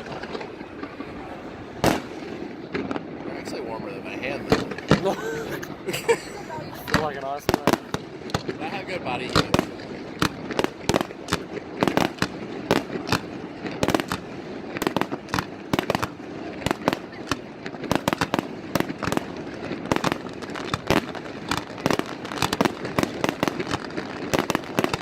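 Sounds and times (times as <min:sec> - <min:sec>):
background rumble: 0:00.0 - 0:15.8
fireworks bangs and cracks: 0:00.0 - 0:25.0.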